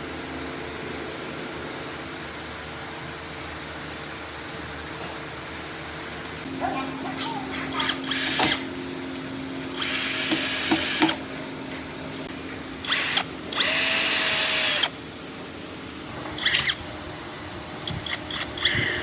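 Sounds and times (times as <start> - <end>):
steady low hum: 0.0 - 19.0
power drill motor whine: 7.8 - 8.8, 9.7 - 11.2, 12.8 - 15.0, 16.3 - 16.9, 17.8 - 19.0.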